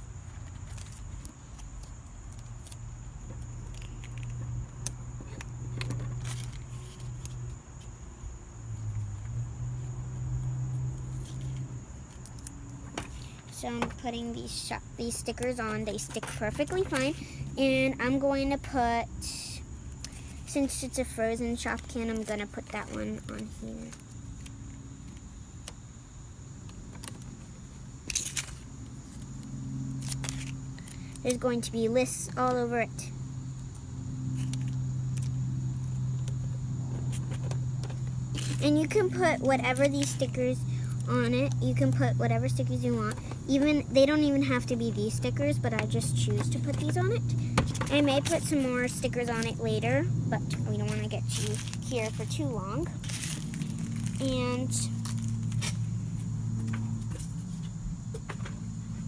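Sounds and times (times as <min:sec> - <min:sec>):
steady low hum: 0:00.0 - 0:59.0
stickers peeling off sheet: 0:00.4 - 0:07.5, 0:29.9 - 0:31.6, 0:45.4 - 0:55.9
stickers pressed onto plastic: 0:15.0 - 0:17.2, 0:45.7 - 0:49.8.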